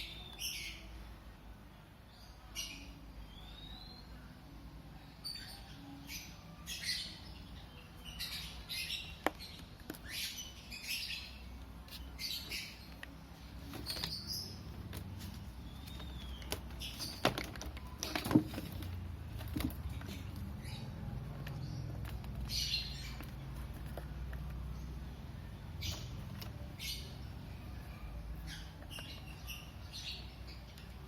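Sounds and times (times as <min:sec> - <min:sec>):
plastic scraping and rustling: 0:11.8 - 0:20.6.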